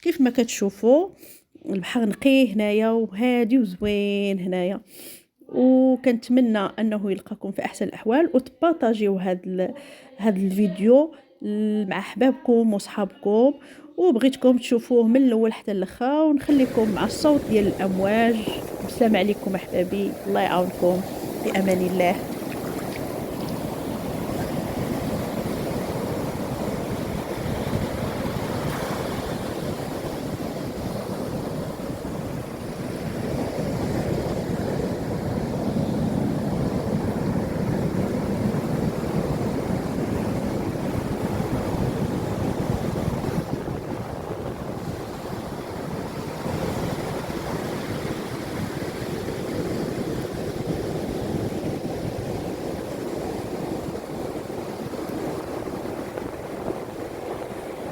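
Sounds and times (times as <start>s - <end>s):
waves breaking on shore: 16.5s - 57.9s.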